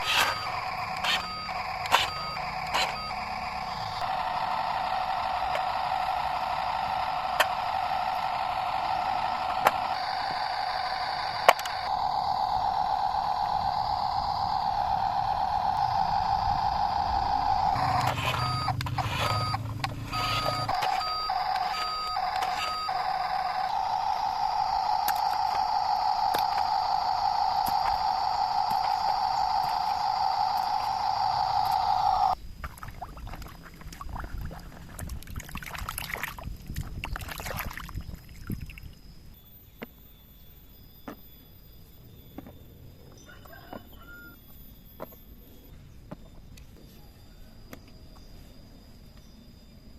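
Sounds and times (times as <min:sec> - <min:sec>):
repeating electronic beep: 0:00.0 - 0:32.4
sharp clicks: 0:00.0 - 0:32.4
toy truck electric motor whirring: 0:00.0 - 0:32.4.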